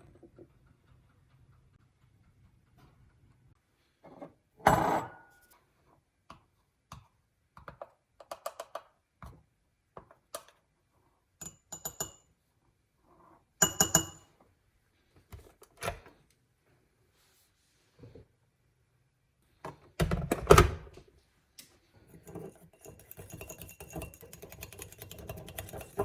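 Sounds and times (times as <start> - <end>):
dishes and utensils clinking: 22.1 - 26.0.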